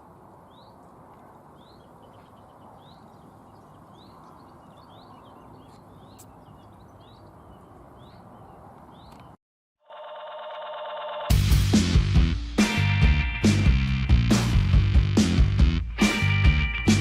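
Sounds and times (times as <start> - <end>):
low outdoor background noise: 0.0 - 9.4
small birds chirping: 0.4 - 9.4.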